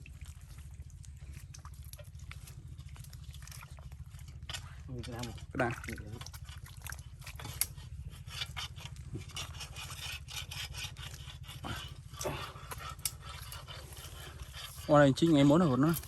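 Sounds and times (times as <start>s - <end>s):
low steady rumble: 0.0s - 16.0s
irregular scraping and rubbing: 7.3s - 16.0s.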